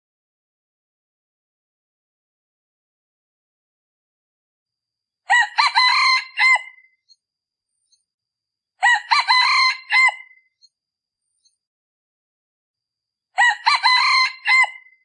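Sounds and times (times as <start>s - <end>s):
junglefowl crowing: 5.3s - 6.9s, 8.8s - 10.4s, 13.4s - 15.0s.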